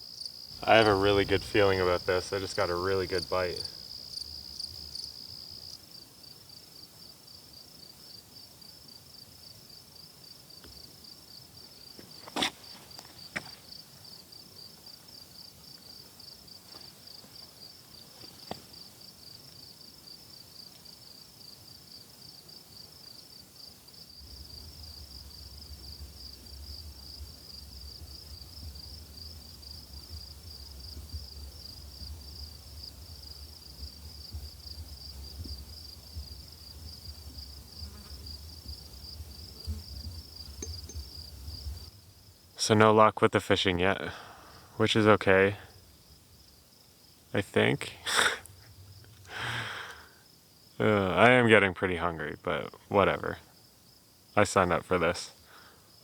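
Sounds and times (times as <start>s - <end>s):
high-pitched insect trill: 0.0s - 42.3s.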